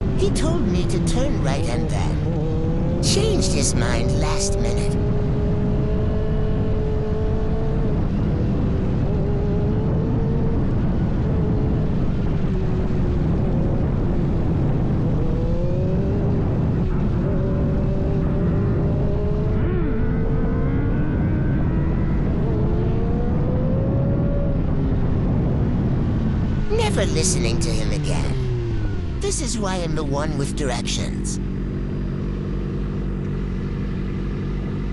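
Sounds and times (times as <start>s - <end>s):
motorcycle engine running: 31.4s - 34.9s.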